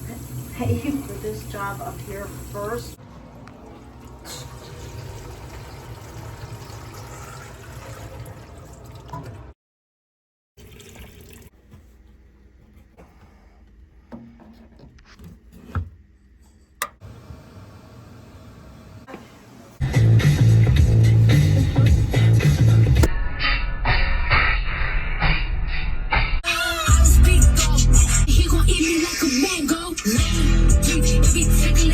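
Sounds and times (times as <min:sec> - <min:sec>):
water pouring: 0:00.0 - 0:09.5, 0:10.6 - 0:11.6.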